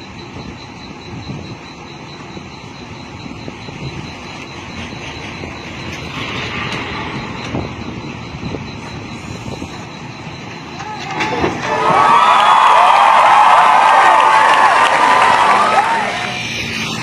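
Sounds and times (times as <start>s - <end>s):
hiss: 8.8s - 9.9s.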